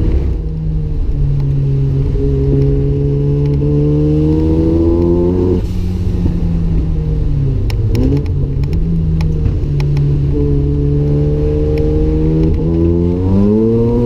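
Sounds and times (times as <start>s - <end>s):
rotary engine revving: 1.9s - 6.7s, 7.8s - 14.0s.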